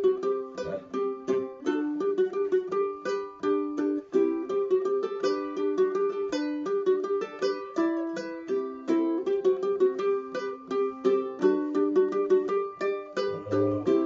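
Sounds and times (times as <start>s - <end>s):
ukulele melody: 0.0s - 14.0s.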